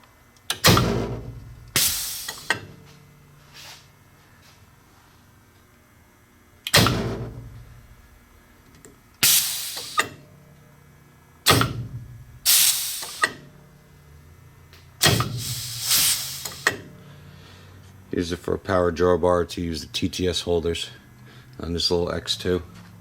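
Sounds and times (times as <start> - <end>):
air cylinder low thump: 0.6 - 2.7, 6.7 - 8.2, 9.2 - 10.2, 11.5 - 13.5, 15.0 - 16.9
hissing blasts of air: 1.7 - 2.6, 9.2 - 10.1, 12.4 - 13.4, 15.0 - 16.8.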